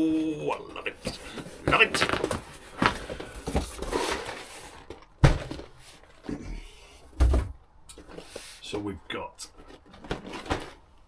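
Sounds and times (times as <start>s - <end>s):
cardboard box rustling and scraping: 0.9s - 6.4s, 9.5s - 11.0s
dull thumps of box set down: 1.0s - 8.3s.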